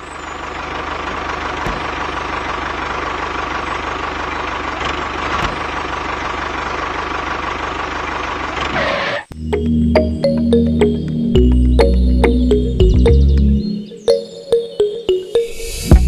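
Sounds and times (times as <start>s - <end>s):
music: 9.4s - 16.0s.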